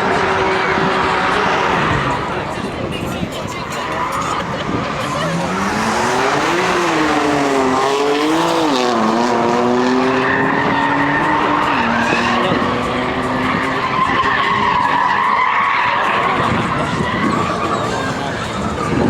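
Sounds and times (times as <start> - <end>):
tyres skidding and screeching: 0.0 - 19.0
car engine revving hard: 4.1 - 15.4.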